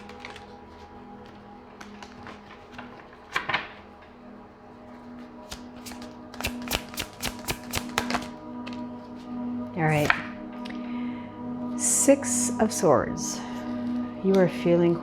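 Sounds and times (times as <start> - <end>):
cards being shuffled: 0.0 - 4.0, 5.4 - 9.2, 9.9 - 10.2
soft background music: 0.0 - 15.0.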